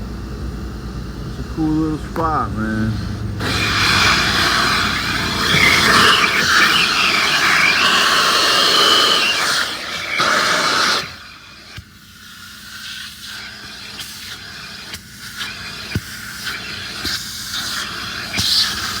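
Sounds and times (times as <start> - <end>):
car wash equipment hissing: 0.0 - 19.0.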